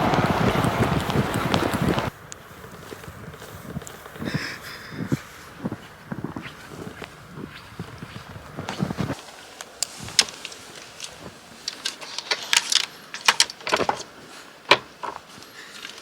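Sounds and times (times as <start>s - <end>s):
footsteps: 0.0s - 16.0s.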